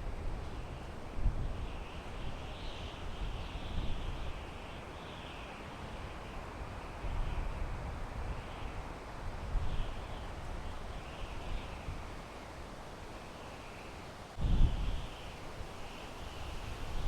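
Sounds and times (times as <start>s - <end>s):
wind through pine trees: 0.0s - 17.0s
wind buffeting microphone: 14.4s - 17.0s.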